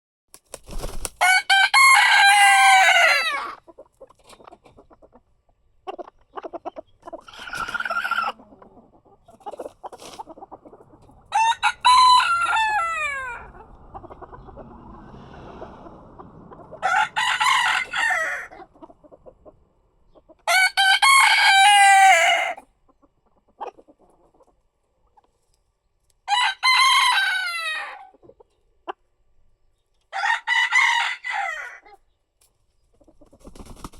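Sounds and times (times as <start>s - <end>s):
rooster crowing: 1.2s - 3.6s, 11.3s - 18.6s, 20.4s - 22.6s, 26.3s - 28.1s, 30.1s - 31.8s.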